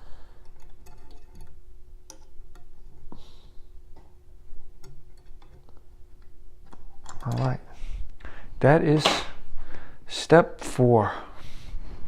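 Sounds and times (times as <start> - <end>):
faint steady hum: 0.0 - 12.0
metal parts clicking and tapping: 0.4 - 3.2, 3.9 - 7.6.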